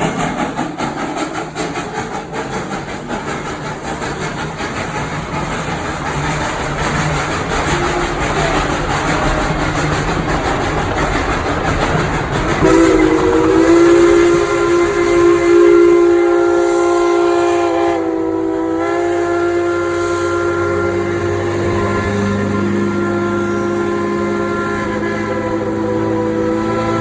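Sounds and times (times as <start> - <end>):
train rumble: 0.0 - 27.0
steam locomotive whistle blast: 12.6 - 27.0.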